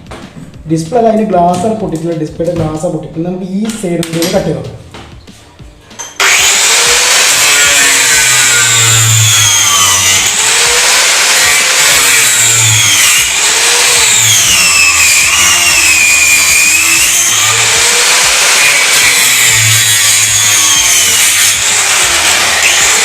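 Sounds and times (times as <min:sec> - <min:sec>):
grinder cutting casing: 0:06.0 - 0:23.0.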